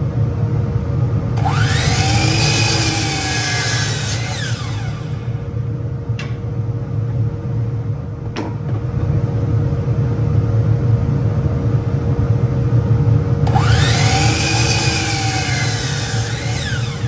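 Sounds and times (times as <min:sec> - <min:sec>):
bandsaw humming: 0:01.4 - 0:05.5, 0:13.4 - 0:17.0
rising and falling whine: 0:13.4 - 0:17.0.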